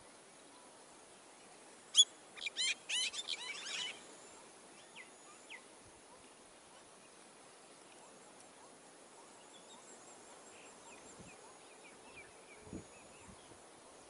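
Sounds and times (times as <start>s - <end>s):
bird singing whistled notes: 1.9s - 5.7s.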